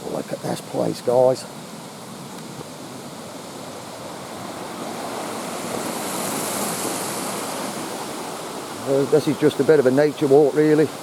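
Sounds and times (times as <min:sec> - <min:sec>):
waterfall rushing water: 0:00.0 - 0:11.0.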